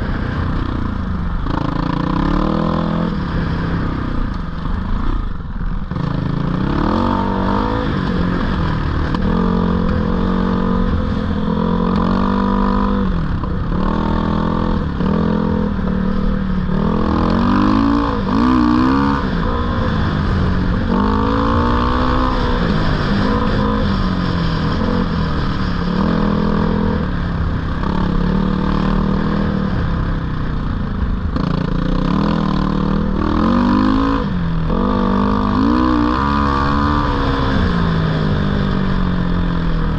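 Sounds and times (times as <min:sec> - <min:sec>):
dirt bike engine revving: 0:05.9 - 0:30.0, 0:31.4 - 0:39.9.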